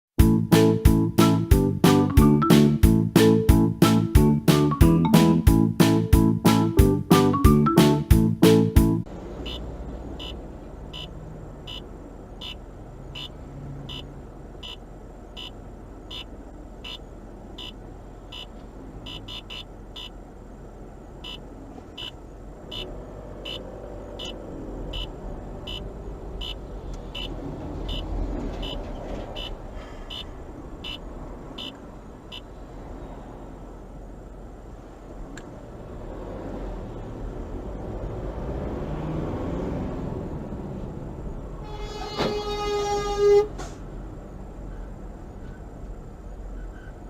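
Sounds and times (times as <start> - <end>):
turn signal ticking: 9.1 - 20.4, 21.1 - 32.5.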